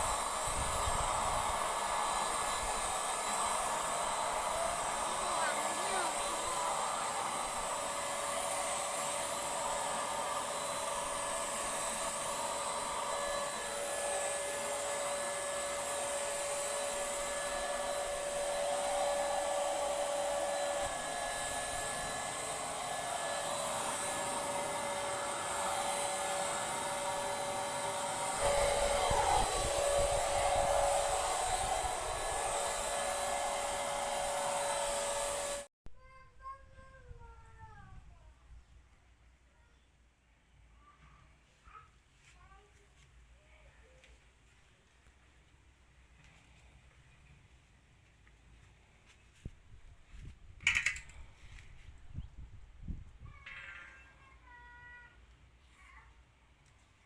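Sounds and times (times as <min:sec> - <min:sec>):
hiss of air and spray: 0:00.0 - 0:35.7
paint sprayer motor whine: 0:00.0 - 0:35.7.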